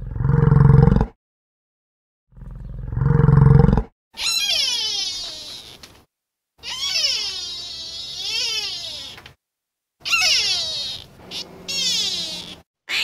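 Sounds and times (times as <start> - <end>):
high-pitched animal cries: 4.2 - 5.9, 6.6 - 9.3, 10.0 - 13.0.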